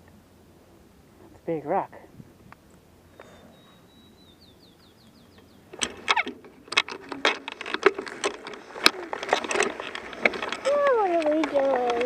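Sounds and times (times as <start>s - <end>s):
bird whistling song: 3.2s - 5.7s.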